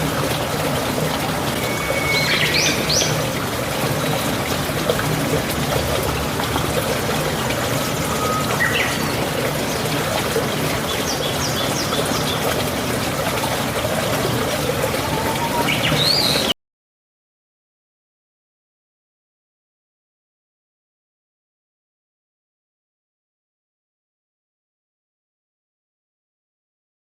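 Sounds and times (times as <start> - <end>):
water running: 0.0 - 16.5
bird chirps: 1.6 - 3.2, 8.2 - 9.2, 15.0 - 16.5.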